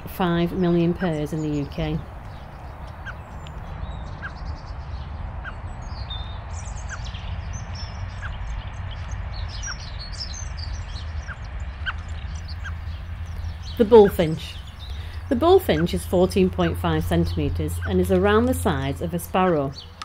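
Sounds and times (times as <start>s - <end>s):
high bird chirps: 9.5s - 20.0s.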